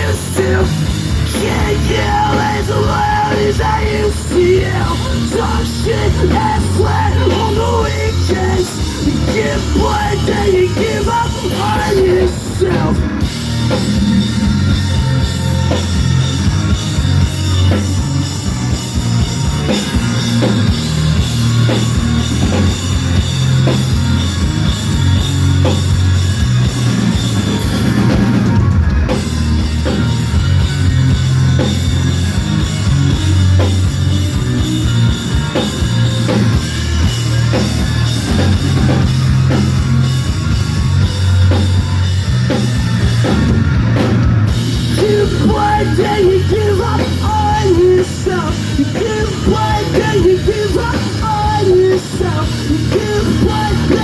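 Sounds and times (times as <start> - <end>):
rock band playing: 0.0 - 54.0.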